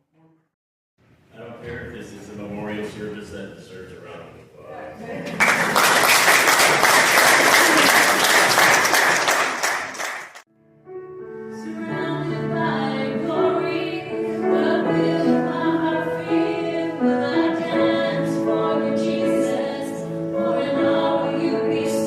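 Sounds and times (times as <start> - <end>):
congregation applauding: 5.2 - 10.4
voices singing slow worship song: 11.5 - 22.0.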